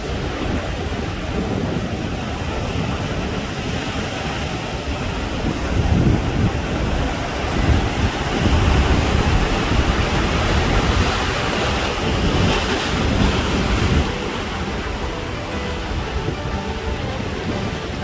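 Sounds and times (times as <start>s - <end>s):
ocean waves breaking: 0.0s - 18.0s
wind rumbling on microphone: 0.0s - 18.0s.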